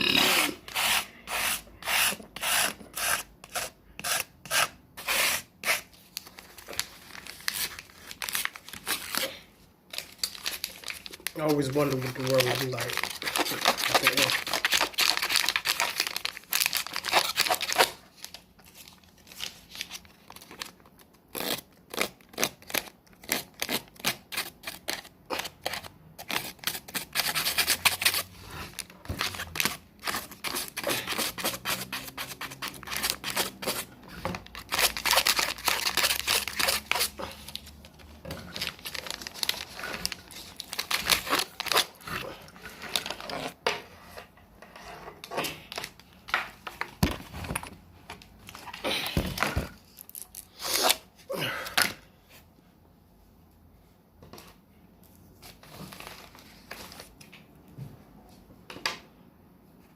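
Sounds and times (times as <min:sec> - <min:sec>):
wrapping crinkling: 0:05.9 - 0:43.6.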